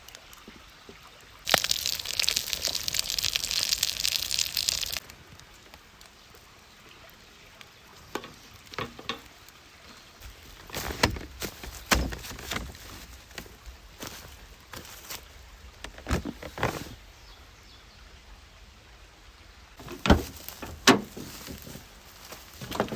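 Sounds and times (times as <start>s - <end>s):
clicks and knocks: 8.2s - 9.3s.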